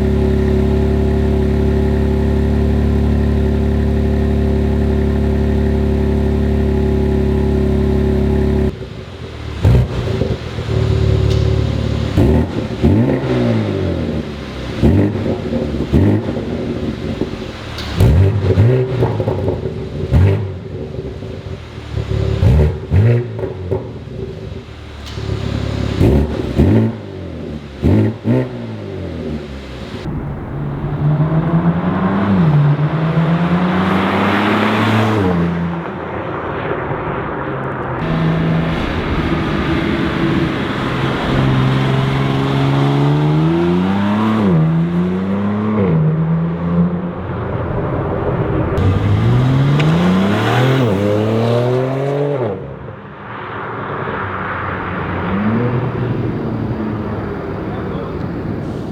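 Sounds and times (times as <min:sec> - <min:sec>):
car engine revving: 0:00.0 - 0:58.9.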